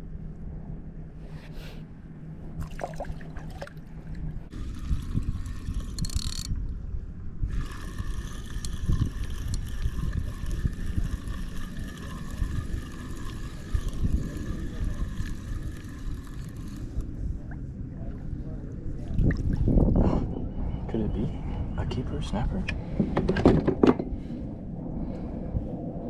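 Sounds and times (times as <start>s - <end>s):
low rumbling noise: 0.0s - 26.0s
fishing reel whirring: 4.5s - 6.6s, 7.5s - 17.0s.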